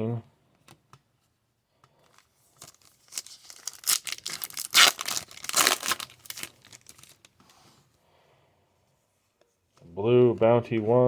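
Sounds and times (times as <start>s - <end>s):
card pack wrapper tearing: 2.1s - 7.3s.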